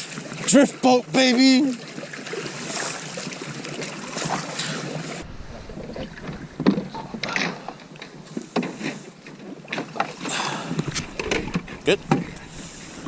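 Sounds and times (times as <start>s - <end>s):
paddles splashing in water: 0.0s - 13.0s
wind noise on microphone: 5.1s - 8.3s, 10.6s - 13.0s.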